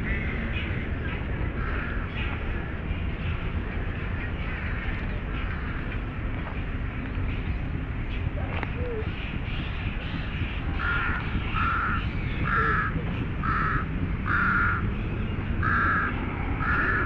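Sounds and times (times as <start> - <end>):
bird calling: 8.3 - 14.9.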